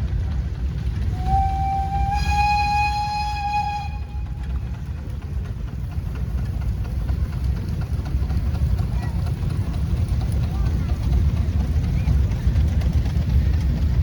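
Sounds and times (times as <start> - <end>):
steam whistle toot: 1.1 - 4.4.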